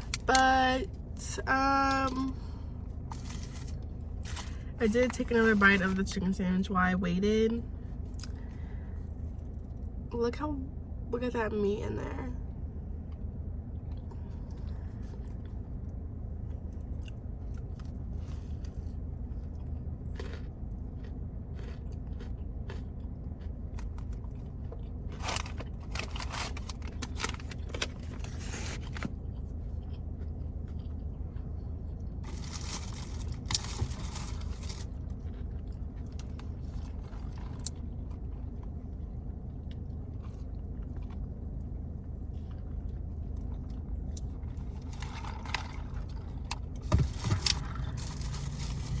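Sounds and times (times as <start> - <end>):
low hum: 0.0 - 49.0
crunchy chewing: 16.4 - 49.0.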